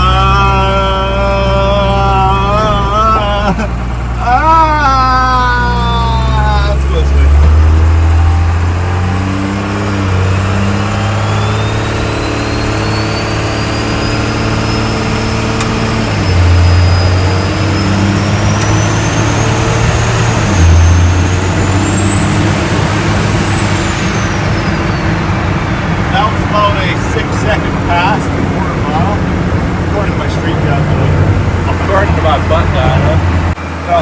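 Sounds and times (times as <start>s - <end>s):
diesel truck engine at full throttle: 0.0s - 34.0s
turbo whistle: 10.0s - 26.3s.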